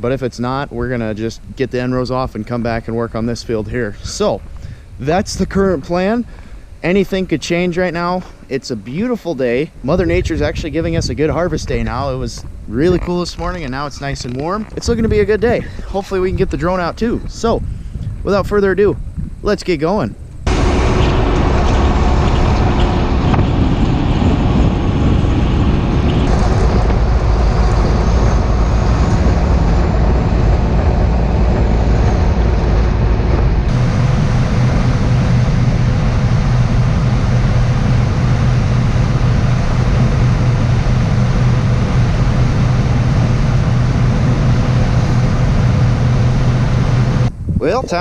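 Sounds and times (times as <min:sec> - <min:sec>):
low hum drone: 0:20.2 - 0:48.0
vehicle engine running: 0:20.4 - 0:47.4.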